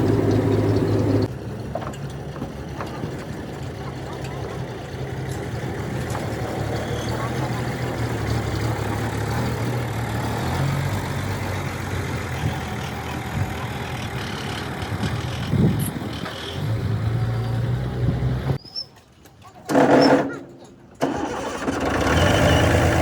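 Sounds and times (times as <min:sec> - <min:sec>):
bulldozer diesel engine running: 0:00.0 - 0:18.6, 0:19.7 - 0:23.0.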